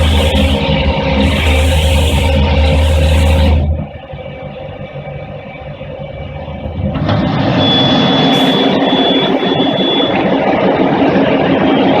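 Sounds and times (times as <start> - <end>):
thin high whine: 0.0 - 4.2, 7.5 - 10.7
cleaning machine running: 0.0 - 4.4, 6.8 - 12.0.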